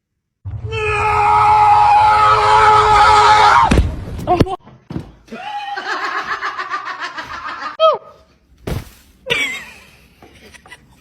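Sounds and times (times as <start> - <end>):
person laughing: 5.4 - 7.8, 9.3 - 11.0.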